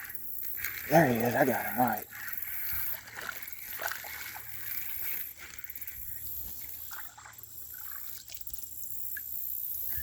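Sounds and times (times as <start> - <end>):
fish splashing in water: 2.8 - 9.3.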